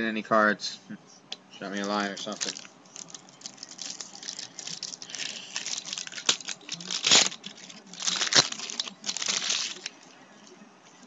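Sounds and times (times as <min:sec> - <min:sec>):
wrapper rustling: 0:01.7 - 0:10.0.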